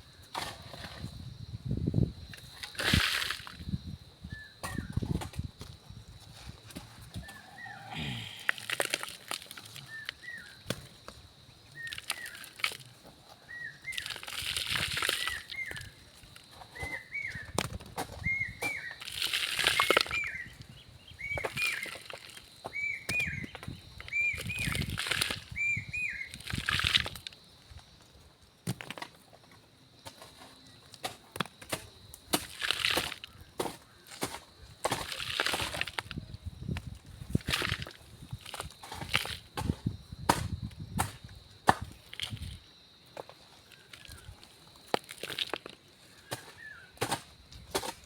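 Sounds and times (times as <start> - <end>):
small bird chirping: 19.7 - 22.0, 22.7 - 26.4.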